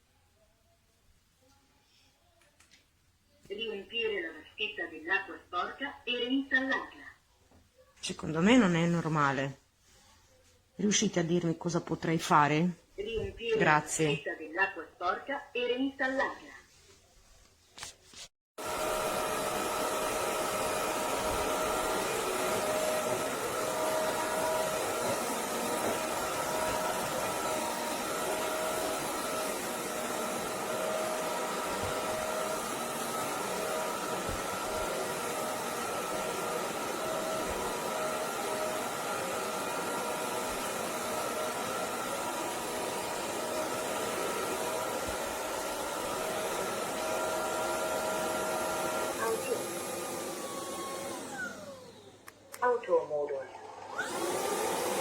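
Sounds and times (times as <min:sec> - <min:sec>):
vacuum cleaner motor whine: 0:18.6 - 0:52.4, 0:53.5 - 0:55.0.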